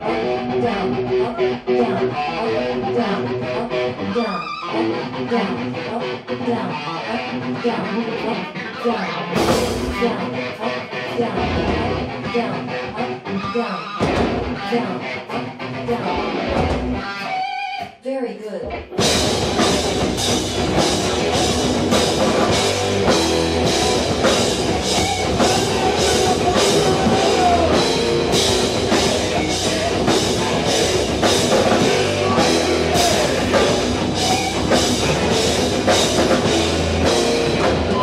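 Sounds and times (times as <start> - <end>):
distorted electric guitar: 0.0 - 17.9, 18.7 - 38.0
drum kit steady beat: 9.4 - 10.0, 19.0 - 38.0.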